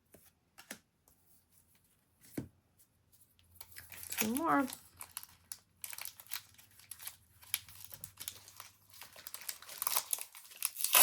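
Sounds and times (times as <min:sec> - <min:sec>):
foil wrapper crinkling: 0:03.8 - 0:11.0.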